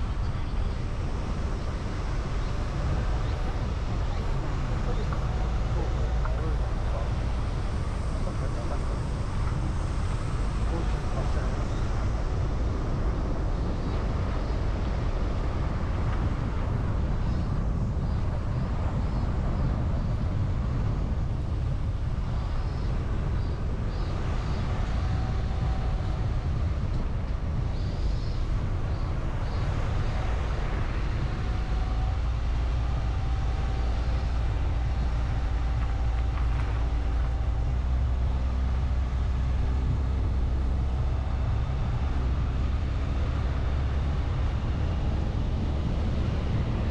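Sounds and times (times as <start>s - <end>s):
car engine and tyre rumble: 0.0s - 46.9s
steady engine hum: 0.0s - 46.9s.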